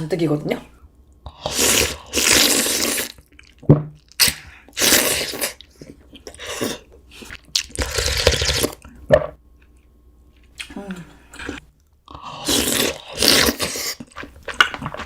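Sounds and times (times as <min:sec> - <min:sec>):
person slurping soup: 0:01.3 - 0:03.2, 0:04.7 - 0:08.8, 0:11.3 - 0:14.2.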